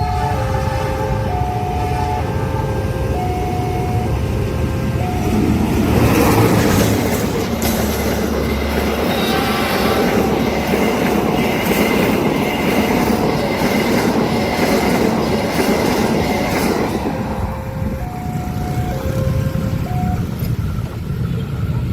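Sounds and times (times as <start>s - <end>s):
train wheels clacking: 5.0s - 21.9s.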